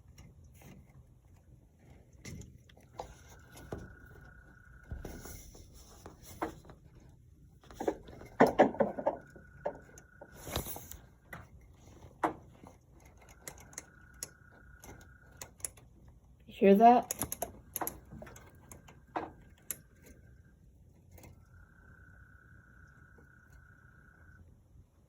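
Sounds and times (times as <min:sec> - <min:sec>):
knocks and rustling: 0:00.0 - 0:13.8.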